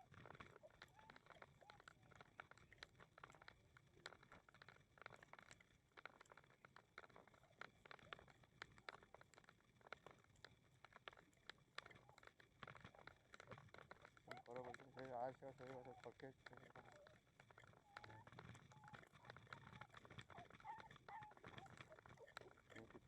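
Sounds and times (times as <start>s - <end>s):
faint footsteps: 7.2s - 23.0s.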